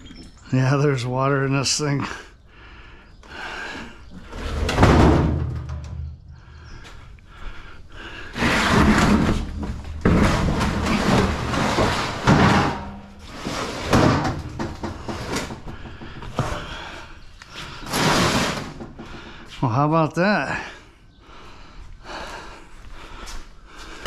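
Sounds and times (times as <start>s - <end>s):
appliance parts clattering and scraping: 4.2s - 6.1s, 8.3s - 17.0s, 17.6s - 19.2s.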